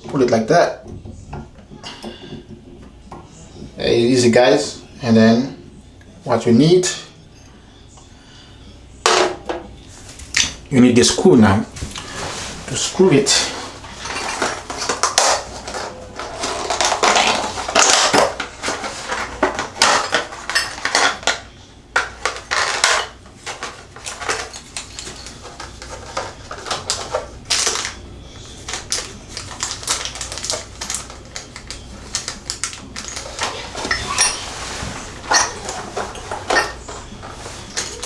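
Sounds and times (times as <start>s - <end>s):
small metal parts clattering: 12.0s - 38.0s.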